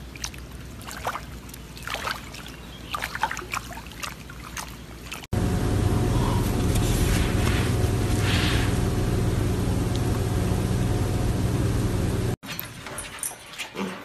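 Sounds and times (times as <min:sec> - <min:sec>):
mud and water squelching: 0:00.0 - 0:05.3
low steady hum: 0:05.4 - 0:12.4.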